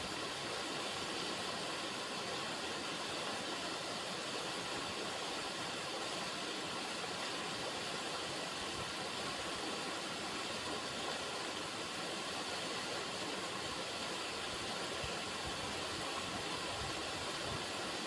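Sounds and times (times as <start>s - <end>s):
river water running: 0.0s - 18.0s.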